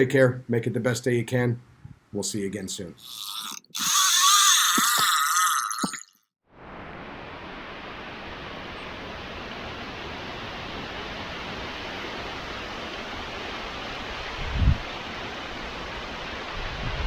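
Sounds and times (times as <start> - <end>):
strong wind rushing: 14.2 - 14.9.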